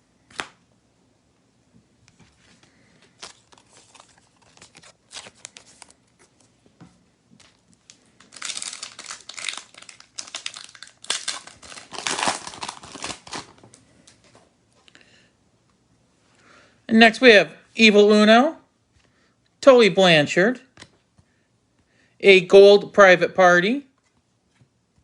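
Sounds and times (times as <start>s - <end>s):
foil wrapper crinkling: 3.0s - 6.2s, 7.4s - 14.2s.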